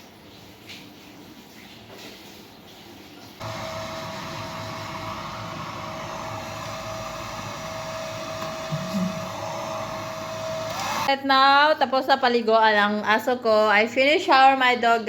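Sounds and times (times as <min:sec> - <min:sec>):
hair dryer running: 0:03.4 - 0:11.1.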